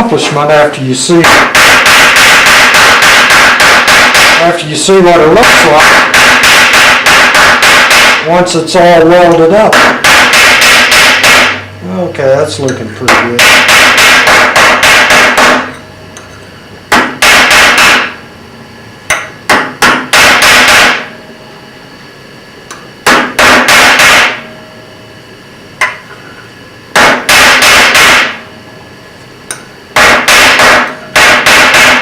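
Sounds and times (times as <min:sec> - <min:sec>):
hammer ringing on steel: 0:13.1 - 0:15.8.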